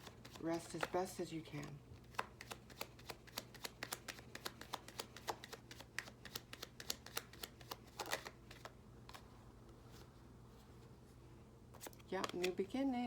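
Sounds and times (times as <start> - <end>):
cards being shuffled: 0.0 - 10.9, 11.7 - 12.8.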